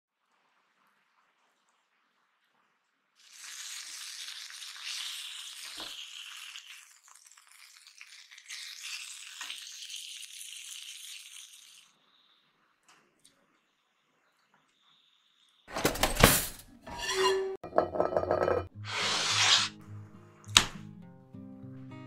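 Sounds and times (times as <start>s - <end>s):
chicken sizzling in oil: 0.1s - 15.7s.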